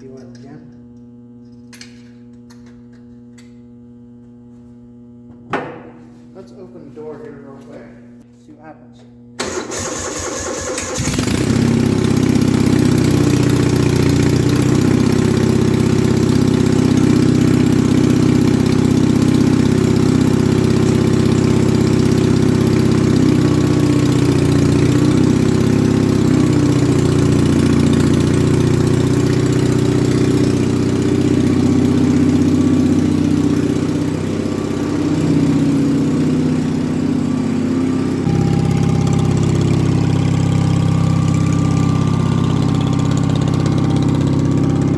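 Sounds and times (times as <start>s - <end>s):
tractor engine running: 9.4s - 44.9s.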